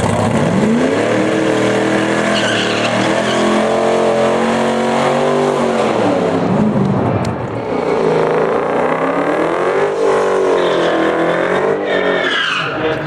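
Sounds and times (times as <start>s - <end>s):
drag car engine accelerating: 0.0s - 13.0s.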